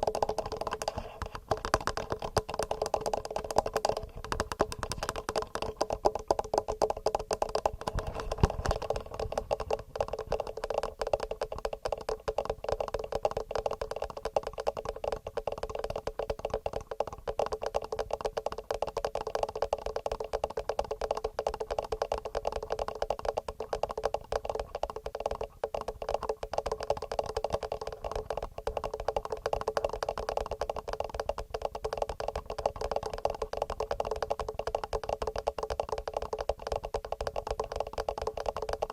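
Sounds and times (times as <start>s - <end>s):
fingernail tapping on recorder: 0.0s - 38.9s.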